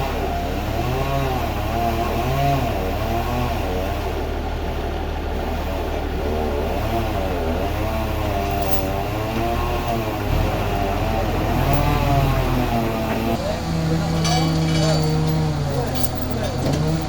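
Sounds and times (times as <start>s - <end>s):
engine revving up and down: 0.0s - 17.0s
steady low hum: 3.7s - 17.0s.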